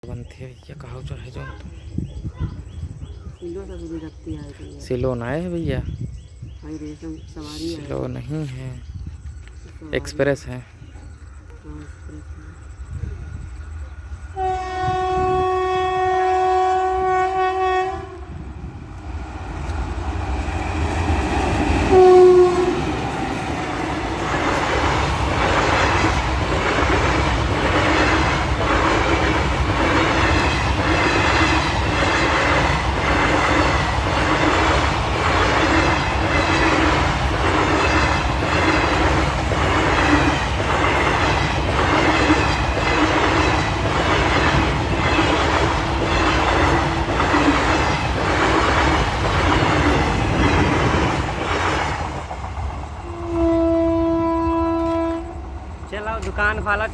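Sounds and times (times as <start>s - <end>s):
train rumble: 0.0s - 56.9s
train horn: 14.3s - 18.5s, 21.9s - 23.0s, 53.0s - 55.6s
wheels clicking over rail joints: 22.7s - 56.9s.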